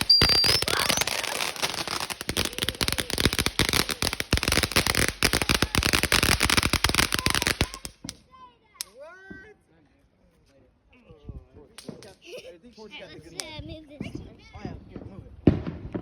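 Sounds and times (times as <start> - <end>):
firework rising whistle: 0.0 - 2.9
firework crackling pops: 0.0 - 9.0, 11.8 - 12.2, 15.0 - 16.0.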